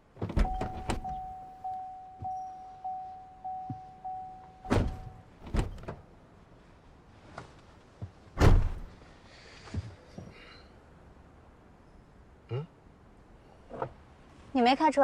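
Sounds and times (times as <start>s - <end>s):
car doors shutting: 0.2s - 2.5s, 3.5s - 6.0s, 8.4s - 8.9s
electronic car chime: 0.4s - 5.3s.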